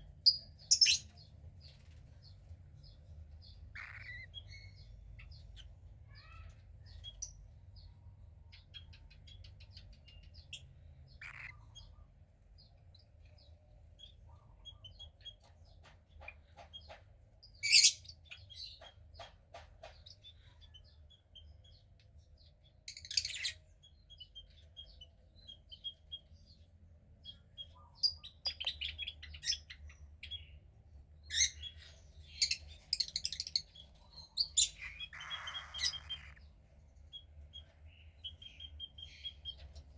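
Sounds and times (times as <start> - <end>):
cockatiel chick chirping: 3.8 - 4.6, 31.3 - 36.5.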